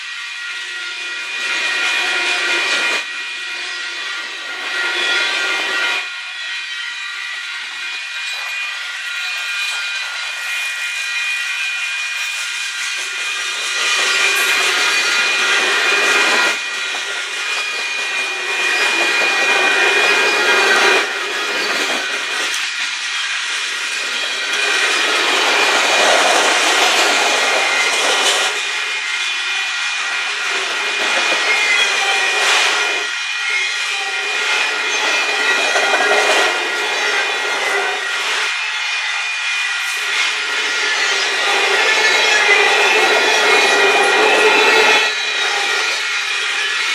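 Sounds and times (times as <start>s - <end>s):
train wheels clattering on rails: 7.6s - 38.6s, 39.8s - 46.9s
steady high whine: 12.6s - 46.9s.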